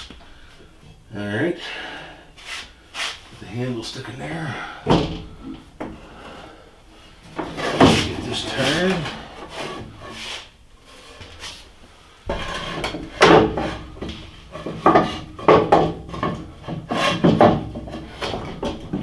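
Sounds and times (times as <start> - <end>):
metal and wood clunking: 4.6 - 10.4, 12.2 - 19.0.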